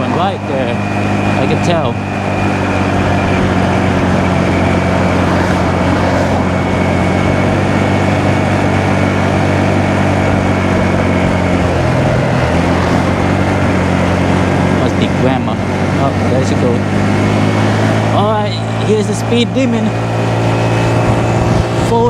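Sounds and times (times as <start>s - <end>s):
small motorcycle engine running: 0.0s - 22.0s
wind and road rush: 0.0s - 22.0s.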